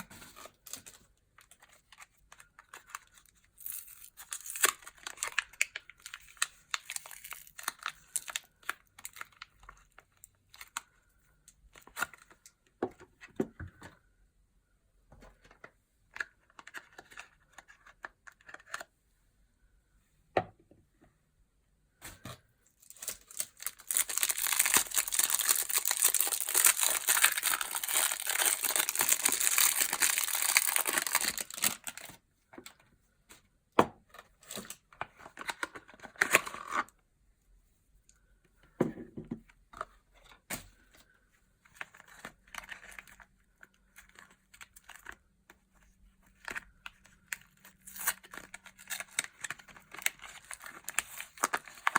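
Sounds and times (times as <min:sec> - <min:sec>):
packaging rustling: 0:22.2 - 0:32.2, 0:46.4 - 0:51.9
packaging tearing: 0:22.8 - 0:32.2, 0:47.2 - 0:51.9.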